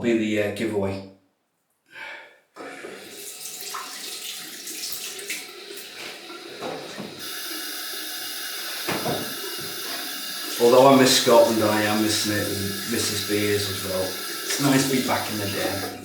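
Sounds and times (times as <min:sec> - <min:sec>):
tap water running into sink: 0:02.6 - 0:16.0
water splashing: 0:02.6 - 0:16.0
small knocks: 0:08.8 - 0:10.1.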